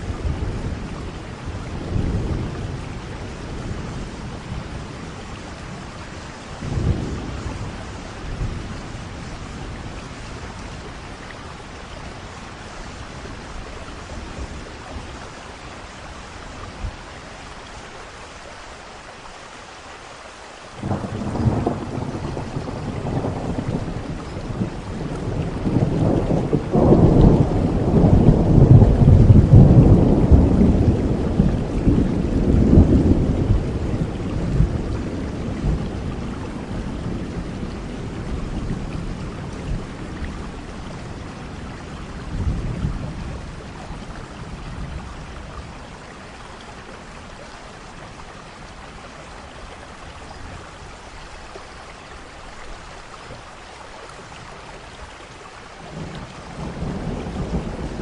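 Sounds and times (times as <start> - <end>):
thunder rumbling: 0.0 - 15.3, 20.8 - 46.3, 55.9 - 58.0
steady rain: 0.0 - 58.0.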